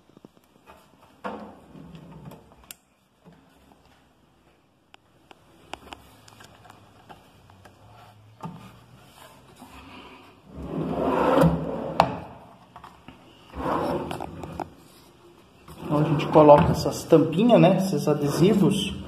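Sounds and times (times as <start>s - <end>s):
drawer sliding and rubbing: 10.5s - 12.4s, 13.4s - 17.0s, 18.0s - 19.0s.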